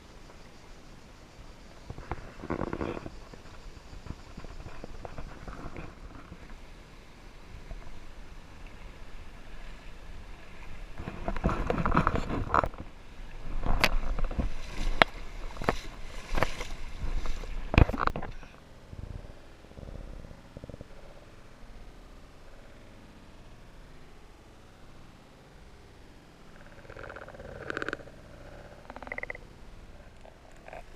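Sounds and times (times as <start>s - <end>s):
creek water splashing: 7.6s - 18.5s.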